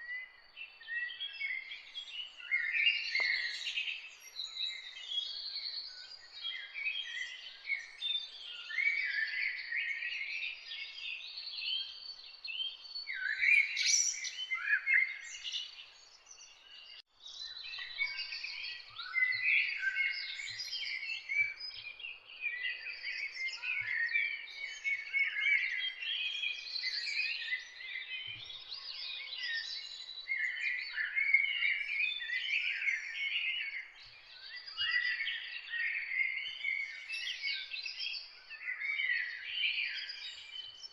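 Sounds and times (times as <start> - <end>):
songbirds chirping and singing: 0.0 - 40.9.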